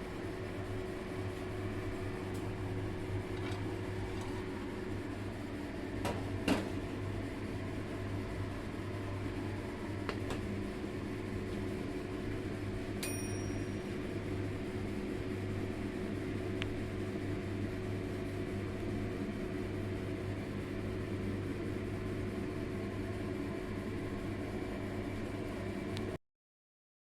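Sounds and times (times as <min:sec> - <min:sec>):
machine hum: 0:00.0 - 0:21.4
short ringing tap: 0:13.0 - 0:13.8.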